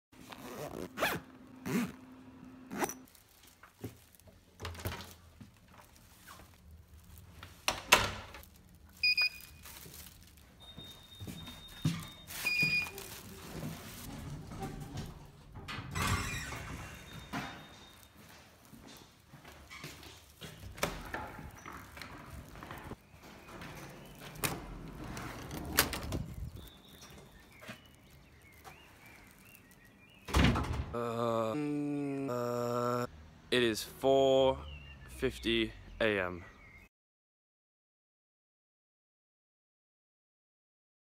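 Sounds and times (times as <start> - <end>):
bag zipping: 0.2 - 2.0, 2.7 - 3.1.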